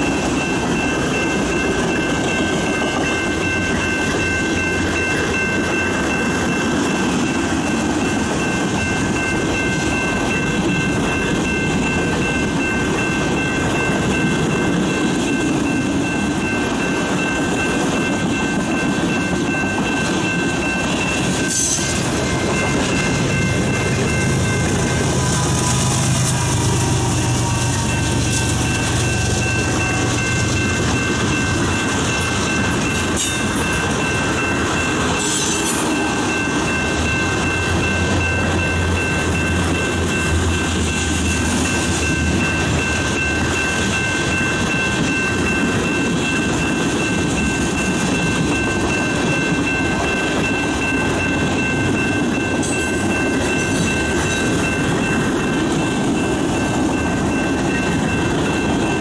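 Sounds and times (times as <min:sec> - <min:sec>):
crossing warning bell: 0:00.0 - 0:59.0
diesel locomotive engine hum: 0:00.0 - 0:59.0
train wheels rolling on rails: 0:00.0 - 0:59.0.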